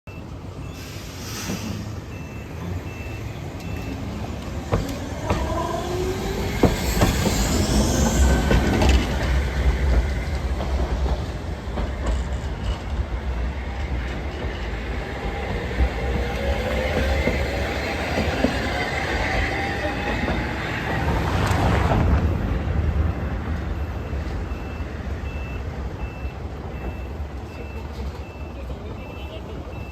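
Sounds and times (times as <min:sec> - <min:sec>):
wheels rumbling on rails: 0:00.2 - 0:29.9
traction motor whine rising: 0:03.7 - 0:09.8.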